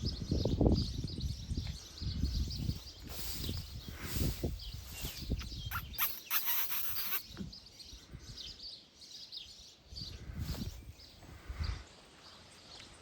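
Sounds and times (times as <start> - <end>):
wind rumble on microphone: 0.0 - 6.0, 9.9 - 11.9
small birds chirping: 0.0 - 13.0.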